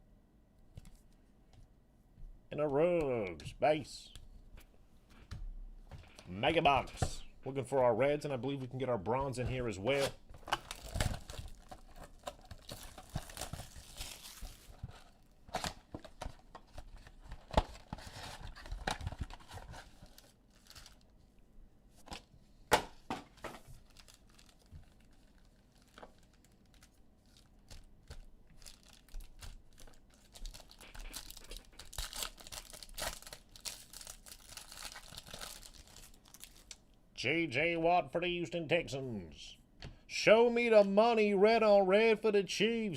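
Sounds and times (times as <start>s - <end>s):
plastic wrappers tearing and crinkling: 9.9s - 21.1s, 23.6s - 36.8s.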